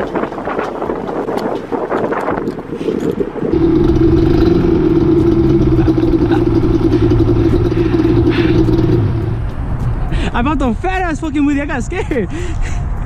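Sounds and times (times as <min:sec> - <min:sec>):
rough noise: 0:03.5 - 0:10.2
vehicle engine droning: 0:03.5 - 0:10.5.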